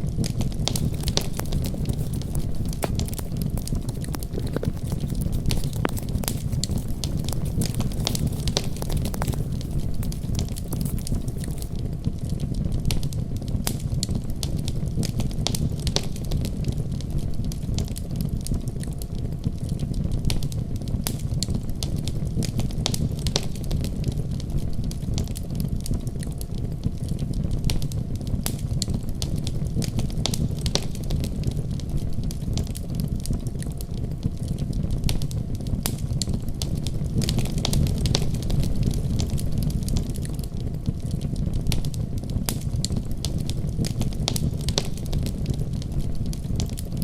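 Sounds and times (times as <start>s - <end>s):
wood fire crackling and popping: 0.4s - 11.9s, 33.2s - 47.0s.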